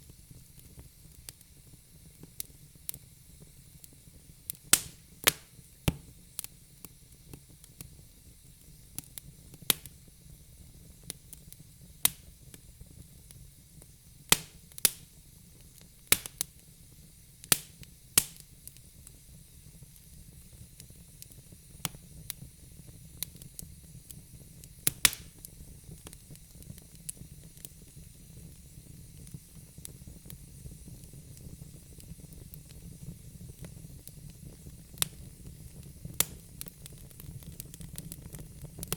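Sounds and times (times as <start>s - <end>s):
faint hiss: 0.0s - 38.9s
low rumble of flame: 0.0s - 38.9s
logs crackling and popping: 4.5s - 6.1s, 14.3s - 15.1s, 16.1s - 16.5s, 17.4s - 18.8s, 24.6s - 27.7s, 33.6s - 38.9s.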